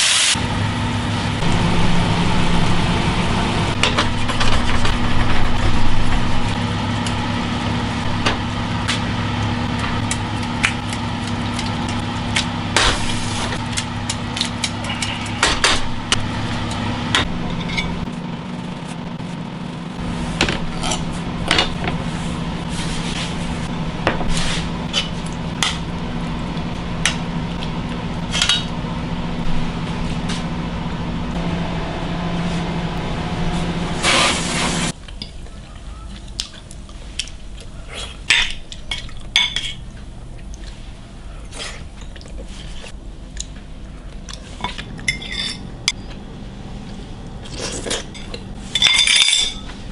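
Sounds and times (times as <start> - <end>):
machine hum: 0.1 - 36.2, 42.6 - 49.9
utensils clinking on cookware: 17.2 - 18.1, 38.3 - 39.8, 44.6 - 46.1, 47.9 - 49.8.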